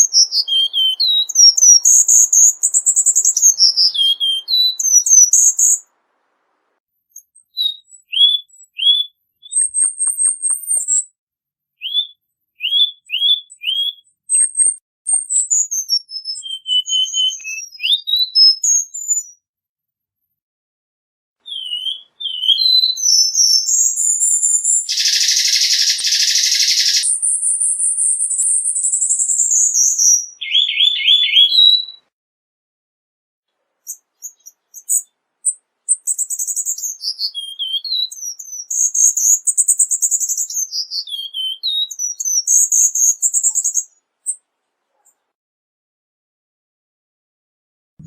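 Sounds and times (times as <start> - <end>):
bird singing high whistles: 0.0 - 5.9, 7.1 - 11.2, 11.8 - 19.4, 21.4 - 32.1, 33.8 - 43.9.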